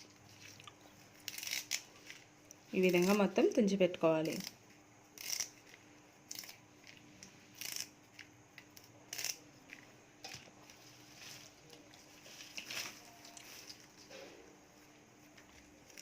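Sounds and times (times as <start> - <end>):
leaves snapping and rustling: 10.7 - 14.0.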